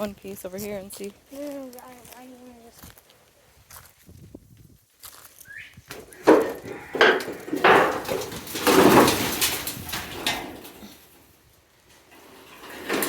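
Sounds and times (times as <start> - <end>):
material clattering and scraping: 5.9 - 13.0.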